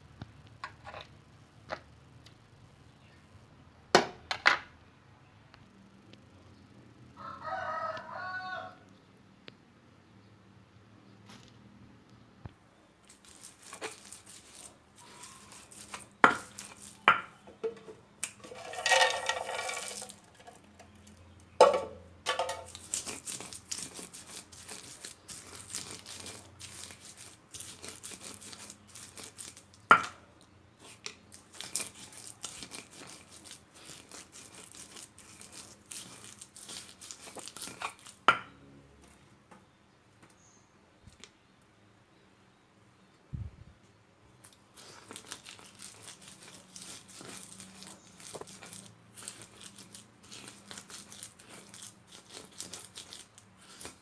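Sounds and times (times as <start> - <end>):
goats chewing fodder: 44.7 - 54.0.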